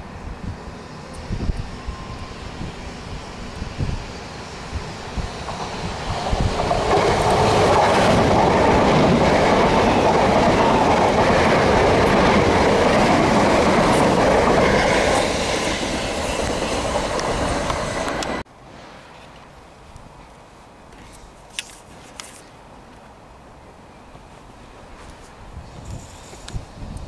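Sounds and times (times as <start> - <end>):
electric train passing: 0.0 - 19.2.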